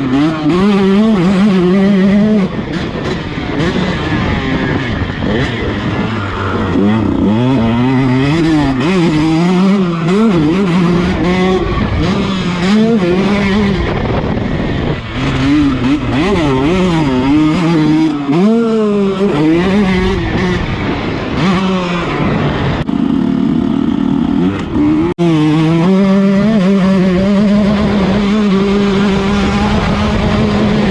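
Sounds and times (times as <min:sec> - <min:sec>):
dirt bike engine revving: 0:00.0 - 0:30.9.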